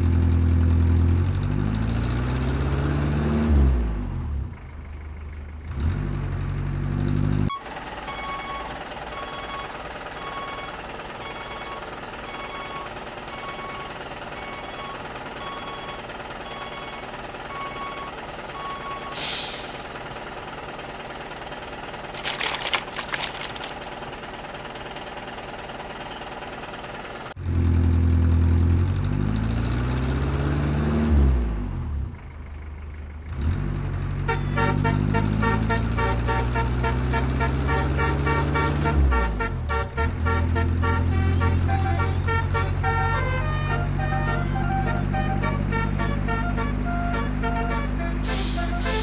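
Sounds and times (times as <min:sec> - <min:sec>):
truck engine revving: 0:00.0 - 0:04.4, 0:27.4 - 0:32.0, 0:33.2 - 0:49.0
short rattle: 0:22.1 - 0:24.0.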